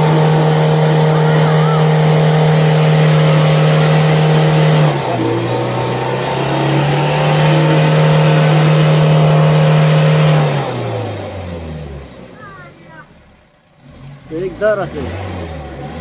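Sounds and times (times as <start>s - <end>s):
vehicle engine revving hard: 0.0s - 16.0s.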